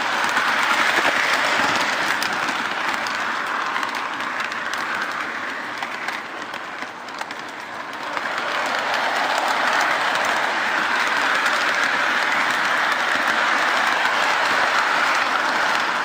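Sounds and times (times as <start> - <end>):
model train wheels rattling on rail: 0.0 - 16.0.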